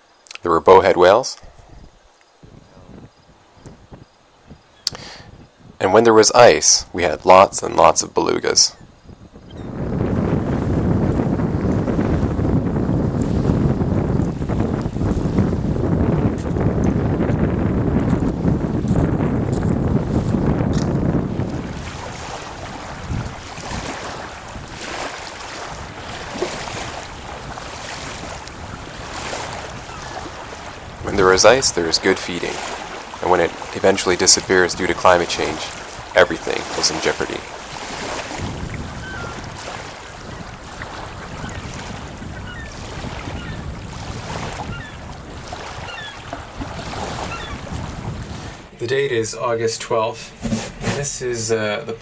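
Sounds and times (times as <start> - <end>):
wind buffeting microphone: 1.4 - 5.8, 8.8 - 48.8
faint seabird calls: 8.7 - 9.8, 28.3 - 47.8
sea water washing: 9.7 - 48.8.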